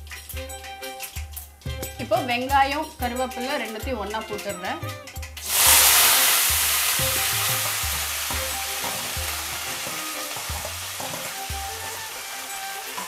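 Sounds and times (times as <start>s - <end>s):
food sizzling in hot oil: 4.4s - 13.0s.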